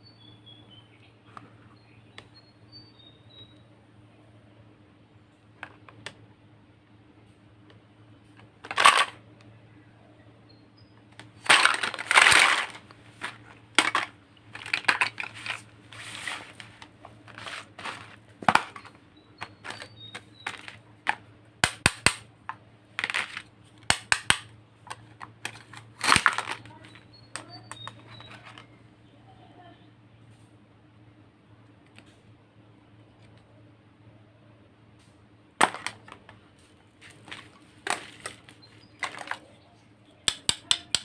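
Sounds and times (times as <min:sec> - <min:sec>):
faint steady hum: 0:00.0 - 0:41.0
plastic toys clicking and tapping: 0:08.6 - 0:09.2, 0:11.2 - 0:28.7, 0:35.6 - 0:36.4, 0:37.0 - 0:39.6, 0:40.2 - 0:41.0.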